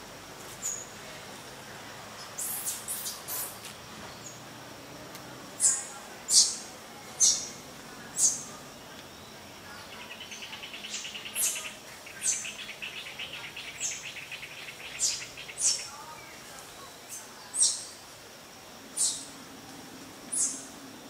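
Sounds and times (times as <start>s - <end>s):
birds chirping: 0.6s - 18.0s, 18.7s - 21.0s.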